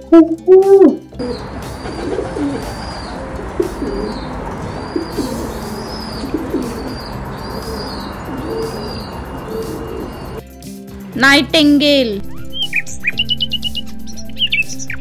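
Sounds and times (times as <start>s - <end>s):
pigeons cooing: 0.4s - 10.4s.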